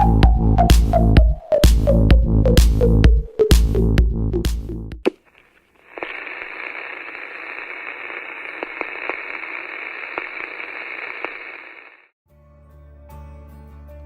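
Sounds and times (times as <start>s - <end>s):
crackling clicks: 5.0s - 12.1s
radio static hiss: 5.1s - 12.2s.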